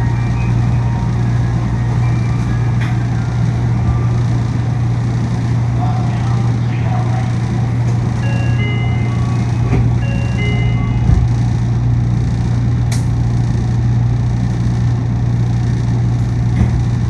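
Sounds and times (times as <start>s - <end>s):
monorail car running hum: 0.0s - 17.0s.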